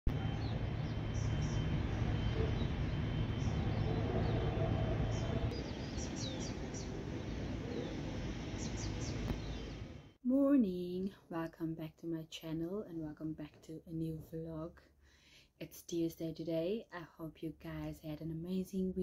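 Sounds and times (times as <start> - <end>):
birds chirping: 0.1 - 10.2
low outdoor rumble: 0.1 - 10.6.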